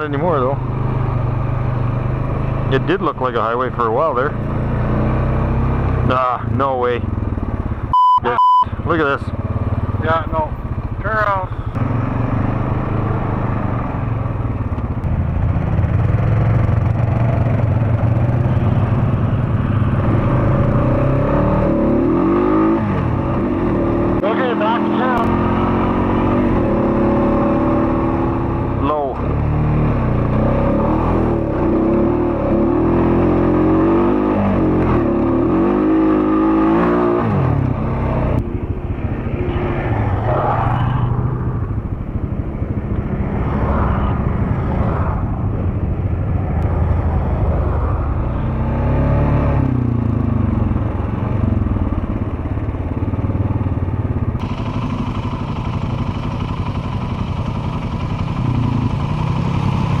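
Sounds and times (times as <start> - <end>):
atv engine revving: 0.0 - 60.0.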